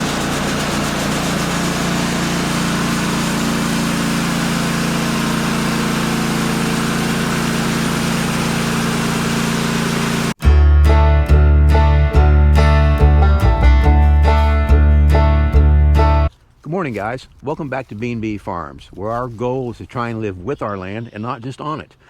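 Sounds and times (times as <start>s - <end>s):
engine running steadily: 0.0s - 10.4s
acoustic guitar music: 10.4s - 16.3s.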